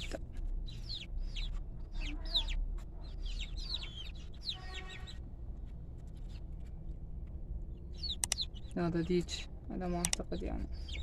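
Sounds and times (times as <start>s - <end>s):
young chickens cheeping: 0.0s - 5.3s, 7.7s - 9.0s, 10.3s - 11.0s.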